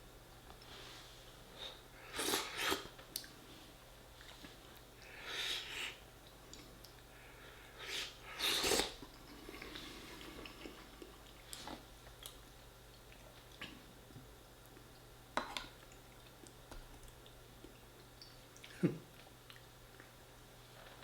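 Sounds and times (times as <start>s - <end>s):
person chewing food: 8.4s - 13.8s.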